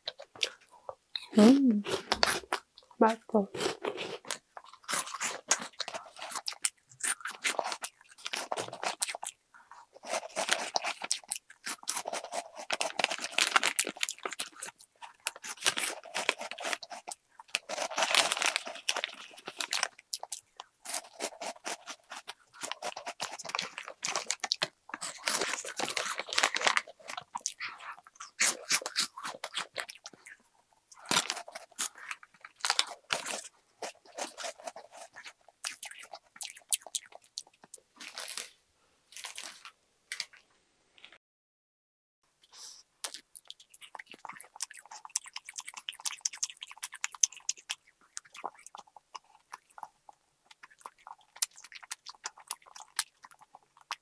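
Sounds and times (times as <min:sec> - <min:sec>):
snack crunching and chewing: 0:00.0 - 0:40.4, 0:42.5 - 0:54.0
plastic snack bag rustling: 0:10.0 - 0:14.7, 0:15.3 - 0:20.0, 0:20.9 - 0:27.4, 0:39.2 - 0:40.4.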